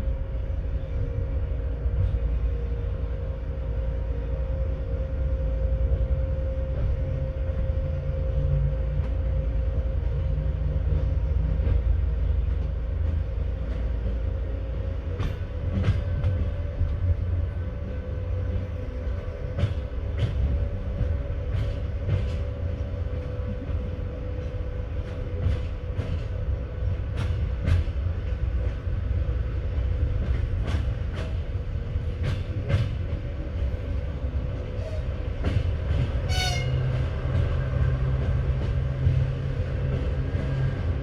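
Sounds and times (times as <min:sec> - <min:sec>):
train carriage rumbling: 0:00.0 - 0:41.0.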